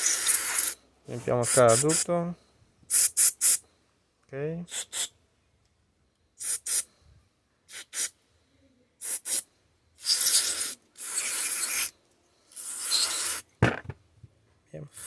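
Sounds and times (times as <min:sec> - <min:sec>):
aerosol can spraying: 0:00.0 - 0:00.8, 0:09.0 - 0:09.4, 0:10.0 - 0:11.9, 0:12.6 - 0:13.8.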